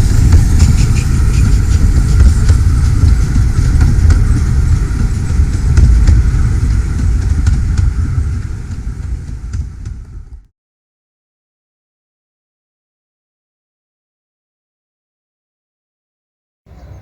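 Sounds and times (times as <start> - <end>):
moving vehicle rumble: 0.0 - 10.5.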